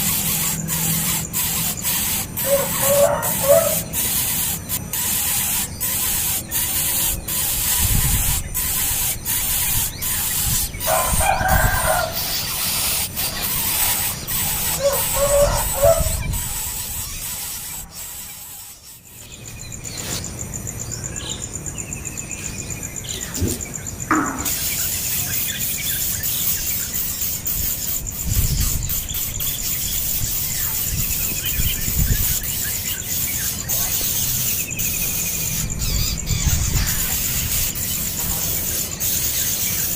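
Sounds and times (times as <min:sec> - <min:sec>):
young bird squealing: 0:00.0 - 0:19.0, 0:26.4 - 0:38.0.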